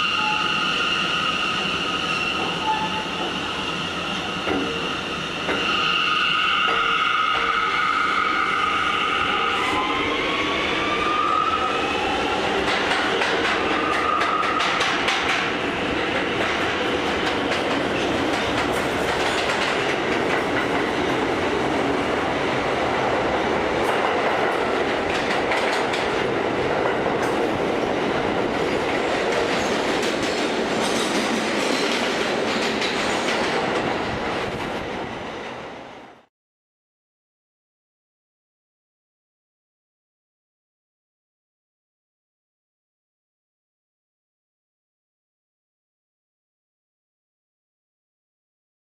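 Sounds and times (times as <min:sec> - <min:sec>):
high train whine: 0:00.0 - 0:36.3.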